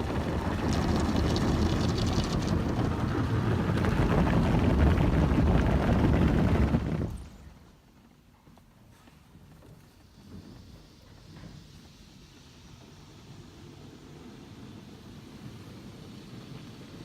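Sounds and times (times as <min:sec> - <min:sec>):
car wash rushing and rumbling: 0:00.0 - 0:07.5, 0:11.8 - 0:17.0.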